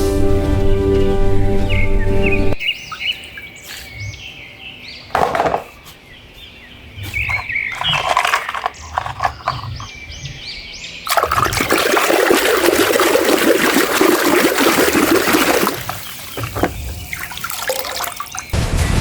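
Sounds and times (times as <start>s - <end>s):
water spraying rush: 11.1s - 18.6s.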